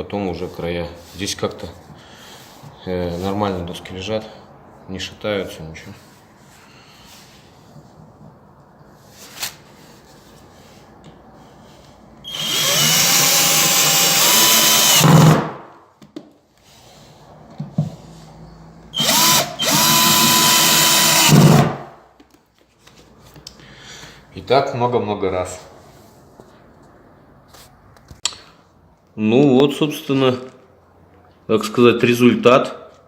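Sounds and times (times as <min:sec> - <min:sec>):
power drill driving screws: 0:12.3 - 0:15.5, 0:19.0 - 0:21.8.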